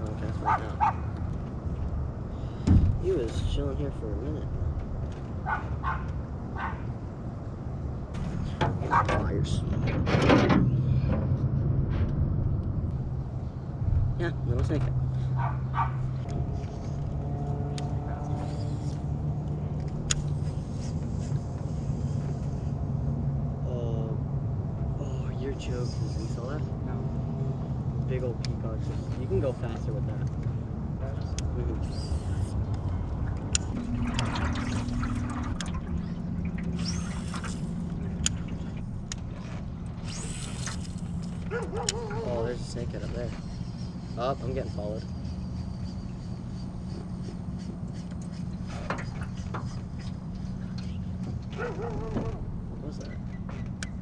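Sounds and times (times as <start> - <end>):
boat motor humming: 0.0 - 9.9, 10.5 - 54.0
water sloshing around hull: 32.3 - 44.1, 45.0 - 54.0.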